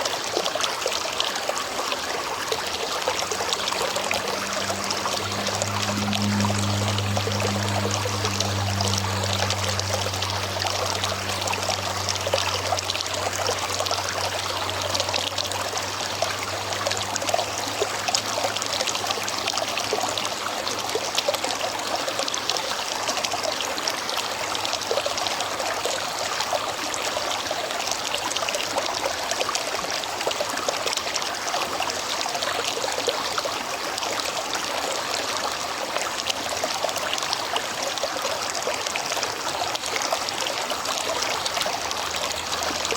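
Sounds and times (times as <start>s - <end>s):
river water rushing: 0.0s - 42.9s
low hum: 2.3s - 21.9s.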